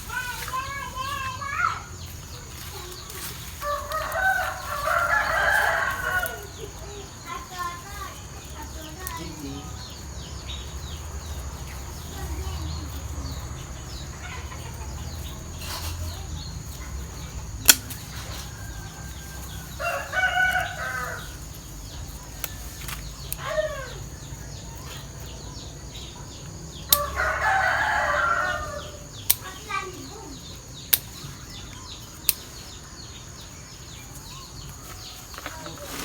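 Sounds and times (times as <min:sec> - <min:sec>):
rooster crowing: 0:03.6 - 0:06.8, 0:18.1 - 0:21.4, 0:26.9 - 0:29.1
sharp click: 0:17.6 - 0:18.0.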